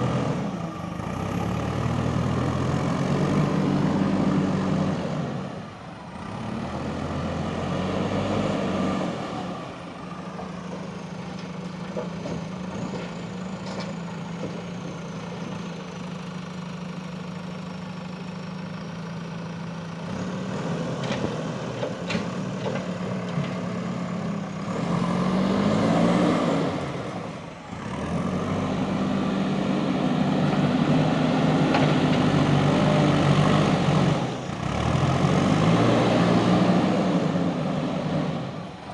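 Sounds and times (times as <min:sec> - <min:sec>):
diesel engine revving: 0:00.0 - 0:10.2, 0:20.0 - 0:38.9.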